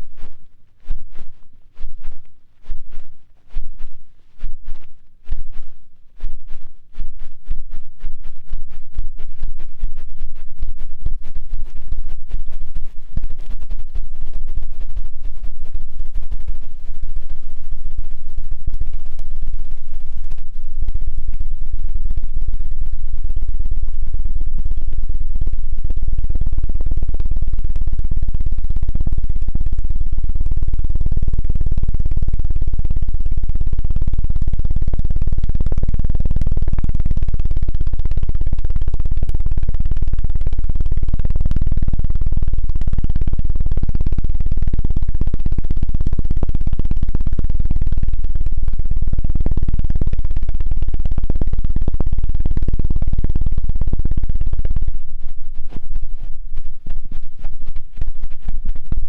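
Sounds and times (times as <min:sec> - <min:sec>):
tool fluttering against microphone: 0:00.0 - 0:21.6, 0:54.6 - 0:59.0.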